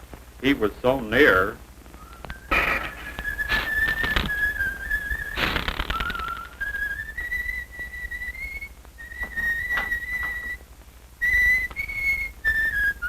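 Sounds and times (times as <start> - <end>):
person whistling a tune: 2.0 - 10.6, 11.2 - 13.0.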